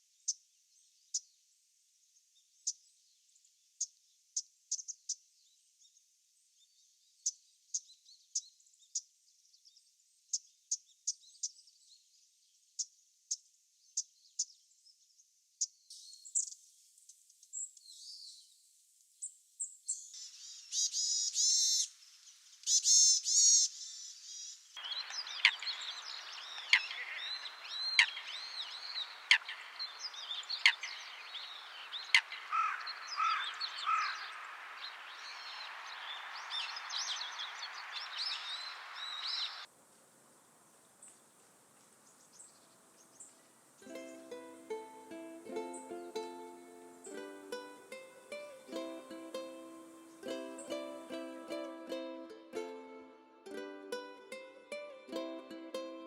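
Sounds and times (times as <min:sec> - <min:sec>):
background hiss: 0:15.9 - 0:56.0
varied tit calls: 0:20.2 - 0:21.9, 0:22.6 - 0:39.7
thin high bird calls: 0:22.6 - 0:39.7
dry tick bird calls: 0:24.8 - 0:39.7, 0:40.7 - 0:43.6.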